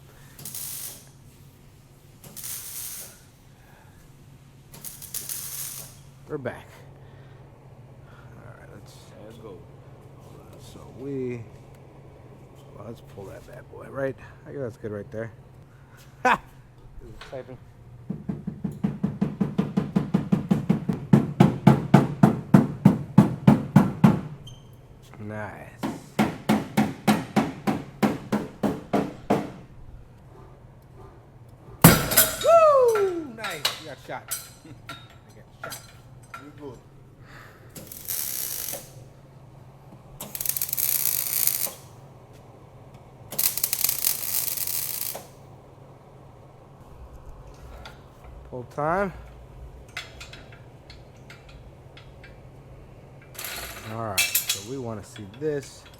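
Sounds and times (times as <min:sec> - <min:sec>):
welder crackling: 0:00.0 - 0:03.5, 0:04.7 - 0:06.4, 0:31.8 - 0:36.8, 0:37.7 - 0:42.2, 0:42.9 - 0:45.6
steady low hum: 0:03.1 - 0:55.9
hammer striking sheet metal: 0:25.8 - 0:29.6, 0:31.8 - 0:33.1.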